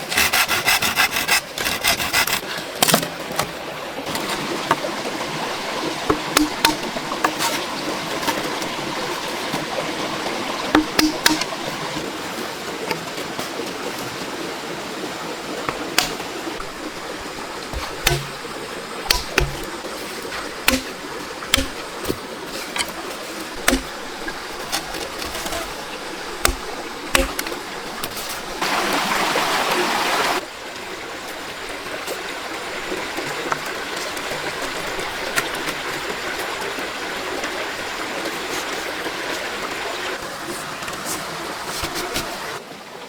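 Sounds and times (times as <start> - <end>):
rushing water: 0.0 - 43.0
sharp knocks or clicks: 6.1 - 7.5, 10.8 - 11.6, 17.7 - 18.4, 19.1 - 19.8, 20.4 - 22.2, 26.4 - 28.2.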